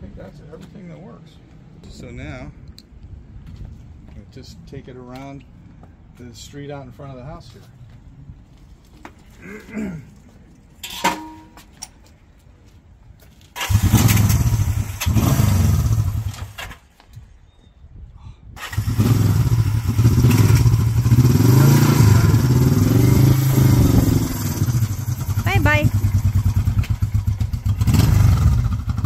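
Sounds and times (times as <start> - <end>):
motorcycle engine starting and revving: 13.6 - 16.9, 18.6 - 29.0.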